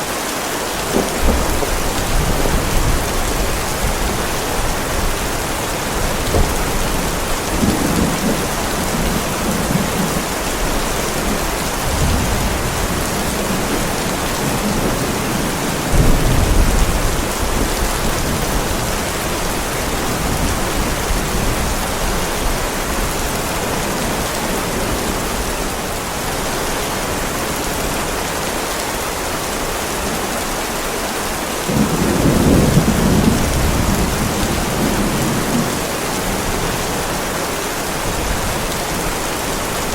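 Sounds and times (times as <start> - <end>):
heavy rain on a driveway: 0.0 - 39.9
thunder rolling: 0.9 - 21.7, 31.7 - 37.0.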